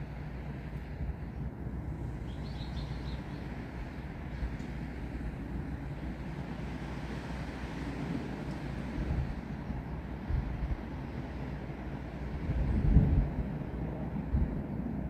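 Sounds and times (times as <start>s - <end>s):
low rumble of wind: 0.0s - 15.0s
bird chirping: 2.3s - 3.5s.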